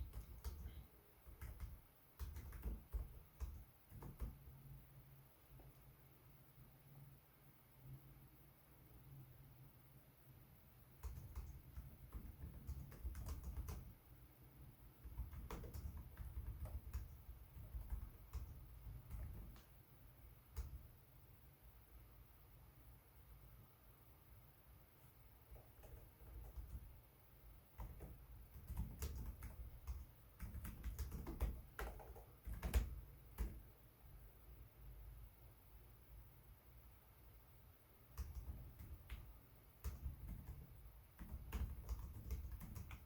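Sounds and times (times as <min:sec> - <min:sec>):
laptop keyboard typing: 0:00.0 - 0:04.6, 0:11.0 - 0:14.0, 0:15.0 - 0:19.8, 0:20.4 - 0:21.0, 0:25.5 - 0:27.0, 0:27.7 - 0:33.8, 0:38.1 - 0:43.0.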